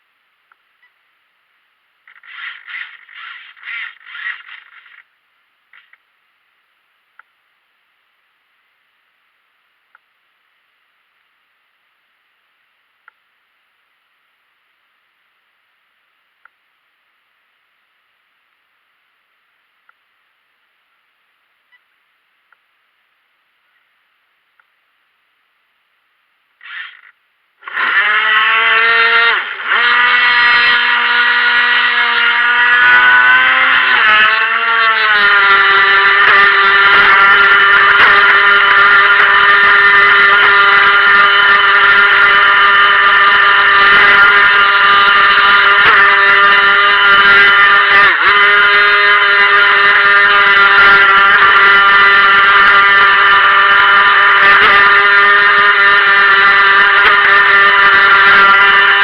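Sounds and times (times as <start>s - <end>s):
electric boat motor whine: 2.2s - 5.0s, 26.6s - 59.0s.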